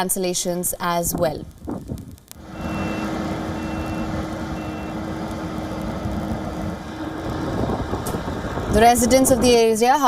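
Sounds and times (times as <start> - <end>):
large vehicle engine running: 2.4 - 9.7
faint high beeps: 2.6 - 5.0.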